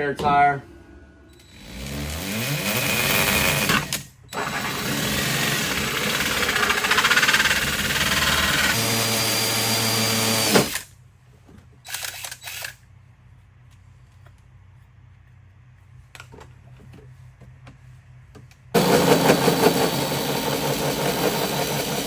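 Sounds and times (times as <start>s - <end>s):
handheld power tool running: 1.4s - 10.8s, 18.8s - 22.0s.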